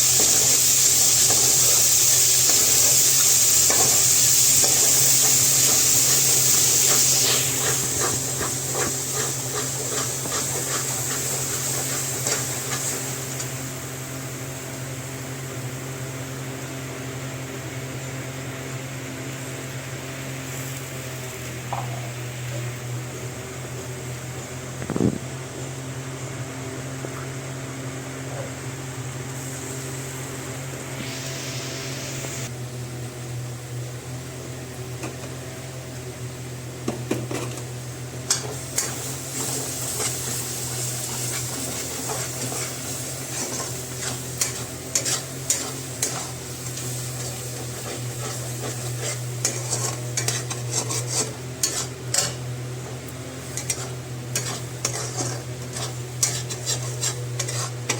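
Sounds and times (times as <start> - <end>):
food sizzling: 0.0 - 32.9, 34.2 - 57.9
spoon scraping in a pan: 4.6 - 13.5, 38.3 - 57.9.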